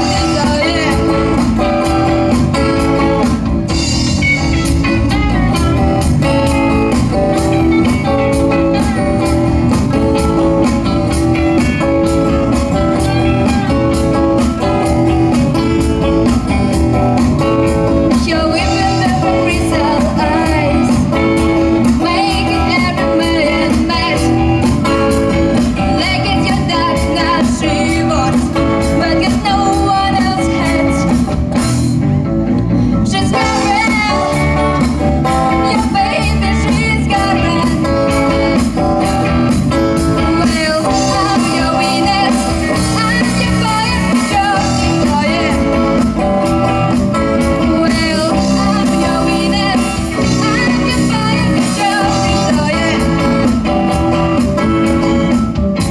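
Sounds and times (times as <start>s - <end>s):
person singing: 0.0s - 31.4s, 33.0s - 55.9s
live rock band: 0.0s - 55.9s.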